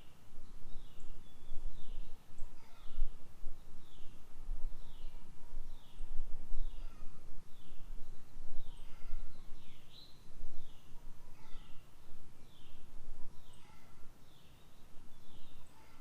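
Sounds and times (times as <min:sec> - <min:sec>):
bird calling: 0:08.7 - 0:11.8.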